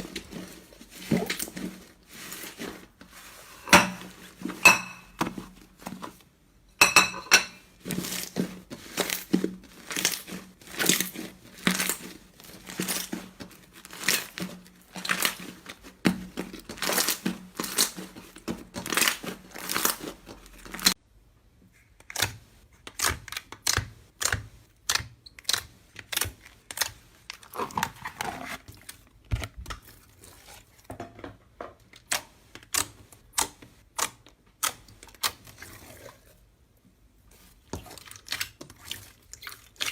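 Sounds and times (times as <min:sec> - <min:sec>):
slime crackling and popping: 0:08.0 - 0:21.0.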